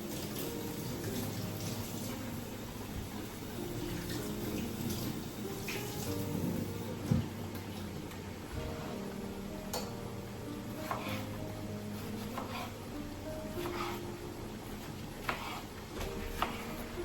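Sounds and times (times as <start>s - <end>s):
water running from tap into sink: 0.0s - 2.6s, 3.2s - 6.8s
soft background music: 0.0s - 17.0s.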